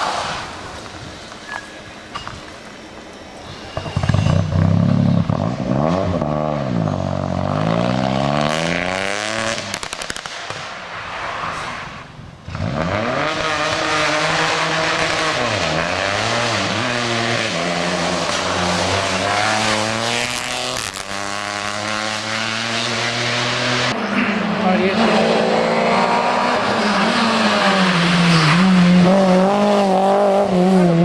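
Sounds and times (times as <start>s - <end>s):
rally car engine revving: 3.8s - 10.0s, 12.5s - 31.0s.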